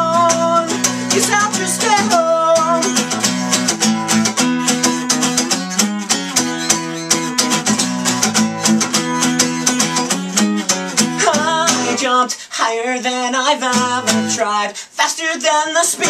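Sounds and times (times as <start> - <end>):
person singing: 0.0 - 3.2, 11.0 - 16.0
acoustic guitar strumming: 0.0 - 16.0.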